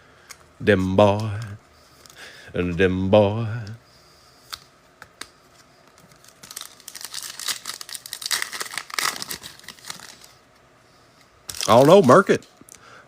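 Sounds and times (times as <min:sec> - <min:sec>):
wrapper tearing and crinkling: 0:06.1 - 0:10.4, 0:11.5 - 0:12.2.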